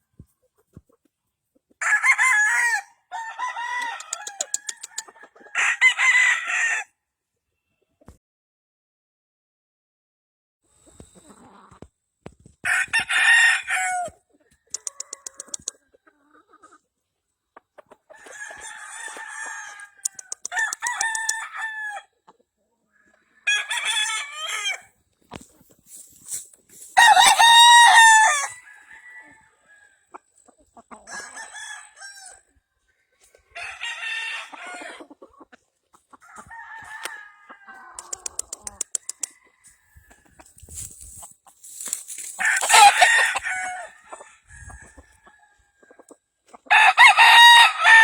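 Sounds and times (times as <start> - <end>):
roosters crowing: 1.8 - 6.9, 12.6 - 15.7, 18.1 - 22.1, 23.0 - 24.9, 26.9 - 30.2, 31.0 - 32.5, 33.5 - 35.1, 36.2 - 40.9, 41.9 - 45.9, 46.6 - 48.0
chickens clucking: 10.8 - 11.9, 14.3 - 21.4, 30.1 - 31.5, 34.4 - 46.7.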